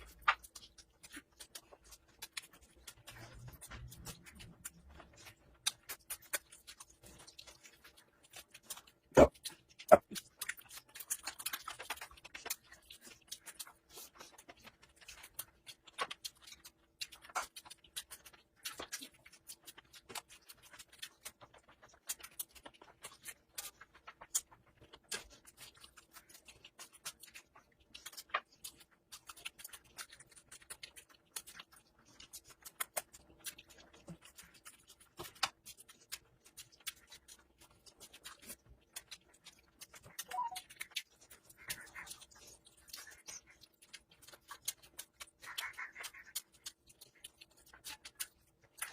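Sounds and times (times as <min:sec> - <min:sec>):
person chewing food: 0:00.0 - 0:48.9.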